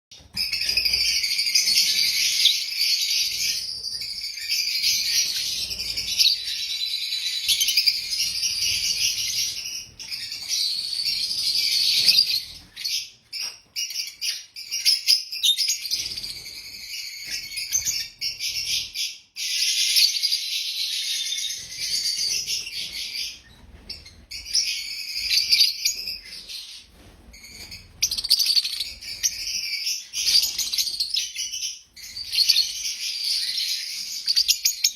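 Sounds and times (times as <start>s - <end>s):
lovebirds chattering: 27.4s - 34.9s.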